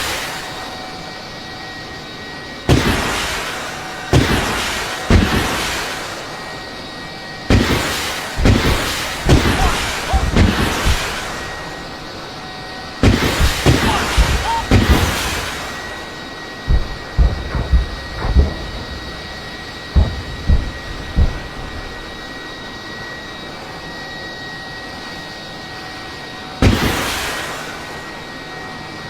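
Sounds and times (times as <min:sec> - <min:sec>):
heavy explosions: 0:08.4 - 0:11.8, 0:13.0 - 0:22.3.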